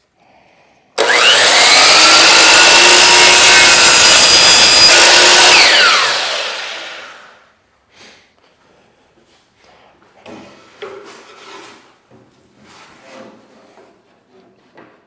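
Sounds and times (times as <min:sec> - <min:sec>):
electric saw cutting wood: 0:01.0 - 0:07.4.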